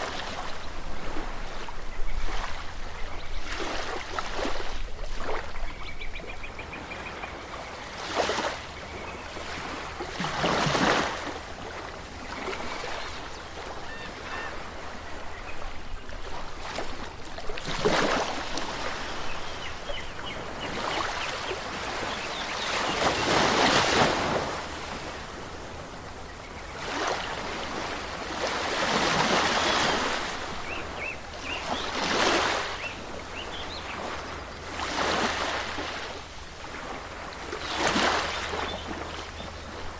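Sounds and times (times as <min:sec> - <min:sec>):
waves washing onto shore: 0:00.0 - 0:39.9
faint bird calls: 0:12.2 - 0:17.4.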